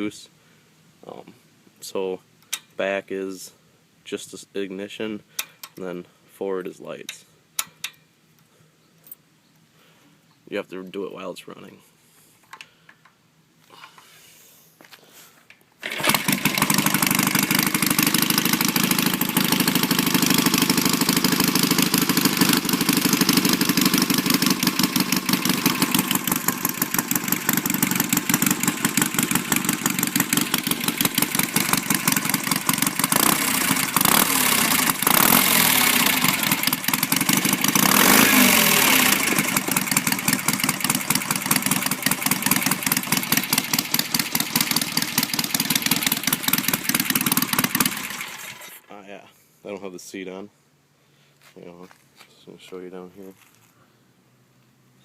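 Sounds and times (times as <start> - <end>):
motorcycle engine starting and running: 15.8 - 48.9.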